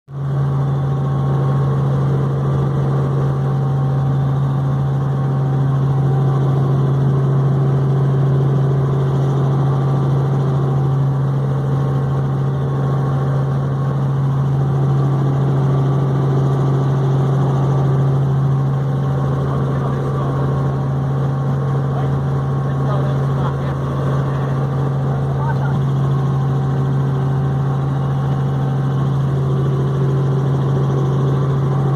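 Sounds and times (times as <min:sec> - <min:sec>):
helicopter low drone: 0:00.1 - 0:31.9.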